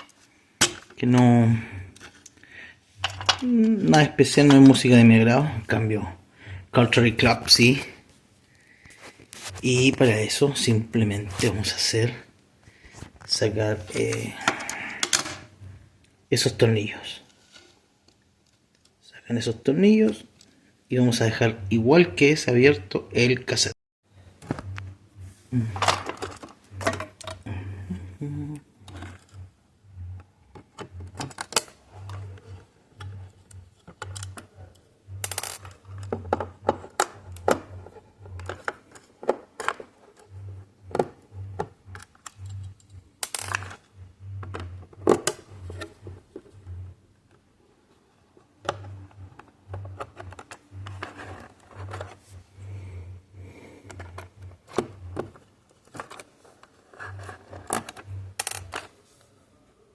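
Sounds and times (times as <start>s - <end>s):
low hum: 20.9s - 23.3s, 24.1s - 56.3s, 56.9s - 59.0s.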